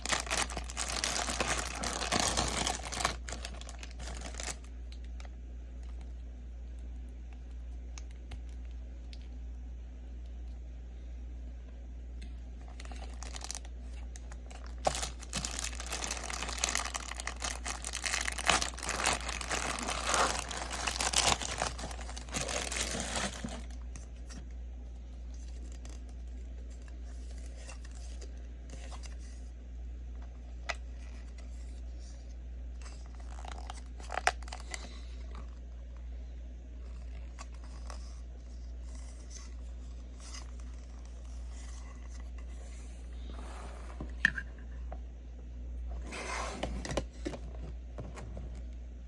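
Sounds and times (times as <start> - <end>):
packaging crinkling and tearing: 0.0 - 5.3, 12.6 - 24.0, 32.8 - 35.1
steady low hum: 0.0 - 49.0.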